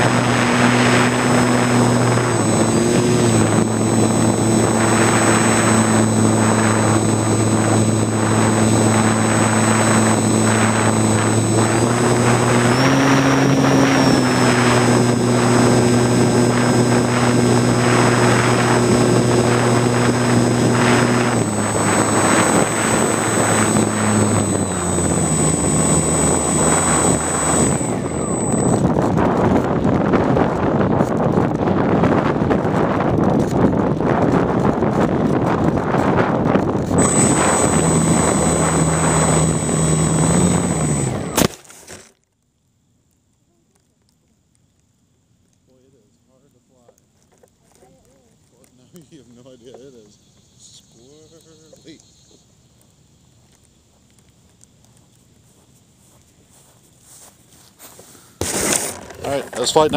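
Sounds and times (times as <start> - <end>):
wind rushing over microphone: 0.0 - 41.6, 58.4 - 59.9
high electric whine: 0.0 - 42.1, 45.7 - 59.9
model airplane electric motor: 0.0 - 42.2, 57.8 - 59.9.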